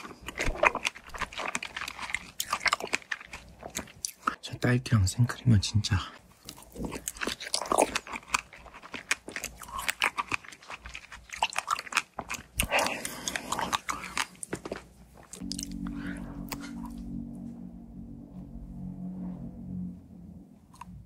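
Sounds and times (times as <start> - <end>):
wet crunchy chewing: 0.0 - 4.4, 6.2 - 17.0
steady low drone: 15.4 - 21.0.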